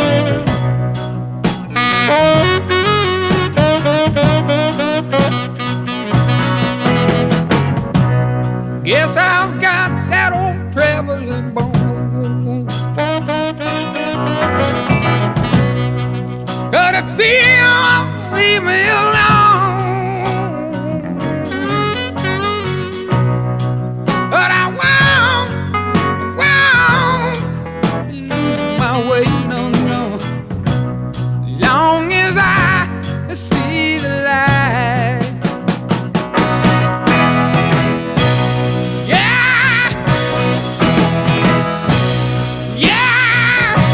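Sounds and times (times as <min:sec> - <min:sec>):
wavering melodic lead: 0:00.0 - 0:32.8, 0:35.5 - 0:43.9
steady bass line: 0:00.0 - 0:43.9.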